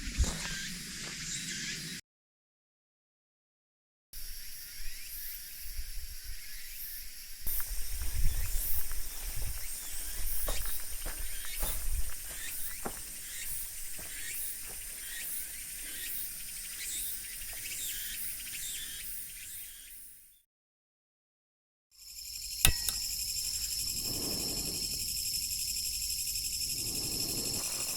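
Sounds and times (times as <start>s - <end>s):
insects chirping: 0.0s - 2.0s, 4.2s - 20.1s, 22.0s - 27.9s.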